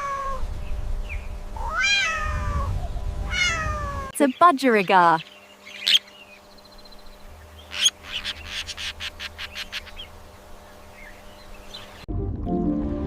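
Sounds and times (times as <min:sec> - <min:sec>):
budgerigar chirping: 0:04.3 - 0:06.4, 0:07.0 - 0:10.2
soft music: 0:12.1 - 0:13.0.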